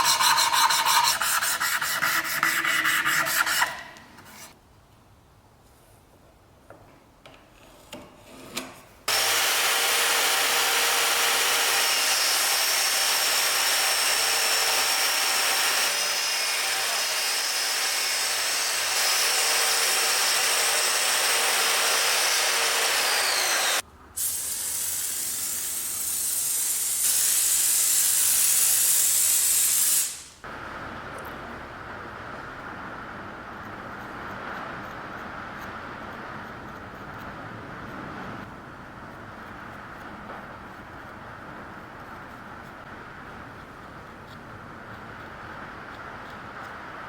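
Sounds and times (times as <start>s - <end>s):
power tool running on wood: 22.5s - 23.8s.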